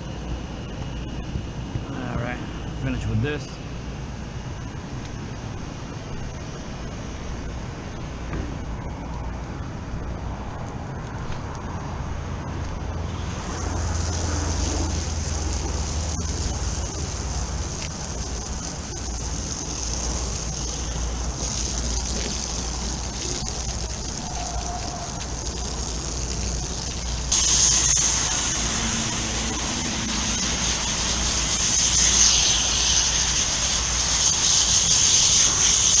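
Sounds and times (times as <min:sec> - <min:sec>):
constant low hum: 0:00.0 - 0:36.0
hose water spraying: 0:12.6 - 0:36.0.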